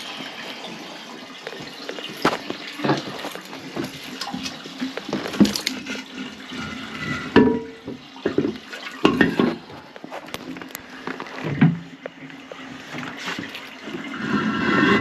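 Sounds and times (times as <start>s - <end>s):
toilet flushing and draining: 0.0s - 15.0s
knocks and clatter of handling: 1.4s - 14.1s.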